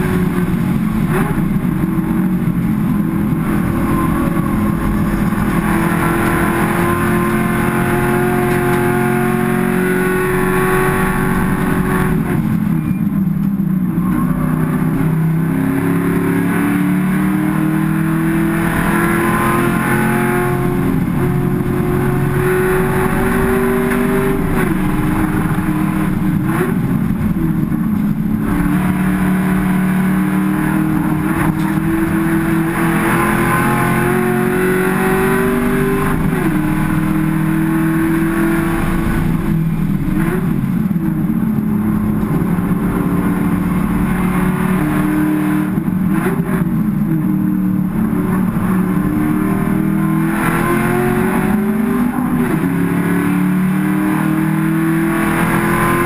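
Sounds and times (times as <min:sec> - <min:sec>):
race car engine revving: 0:00.0 - 0:12.8, 0:13.4 - 0:56.0.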